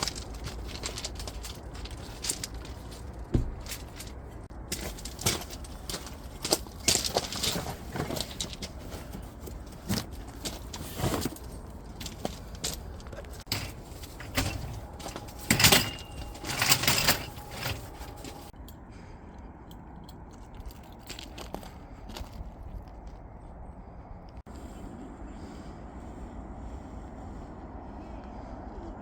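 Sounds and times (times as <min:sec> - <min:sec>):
camping gear clinks and knocks: 0:00.0 - 0:18.6, 0:19.7 - 0:23.2
rustling and scraping: 0:00.0 - 0:18.6.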